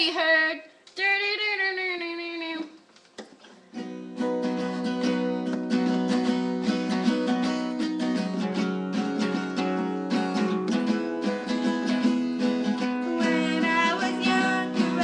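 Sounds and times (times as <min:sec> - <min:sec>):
acoustic guitar strumming: 0:03.6 - 0:15.0.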